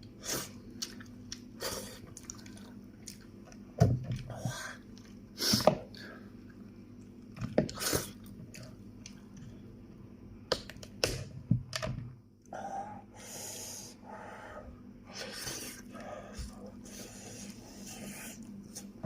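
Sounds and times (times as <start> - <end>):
man chewing food: 0.4 - 5.3.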